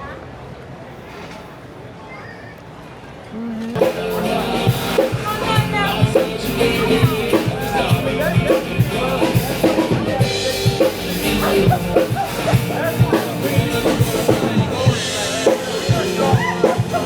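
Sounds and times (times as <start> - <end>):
crowd chatter: 0.0 - 17.0
live band music: 3.8 - 17.0.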